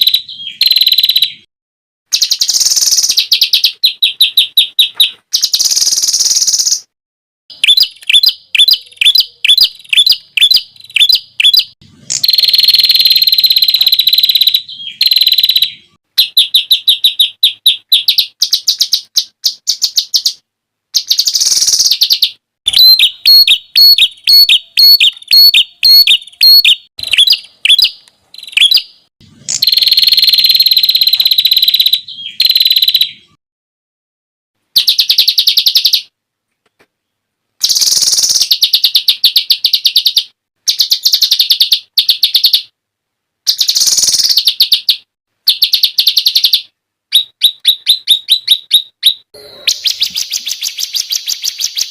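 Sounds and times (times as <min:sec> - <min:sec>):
songbird singing high notes: 0:00.0 - 0:01.5, 0:07.5 - 0:20.4, 0:21.0 - 0:33.4, 0:43.5 - 0:51.9.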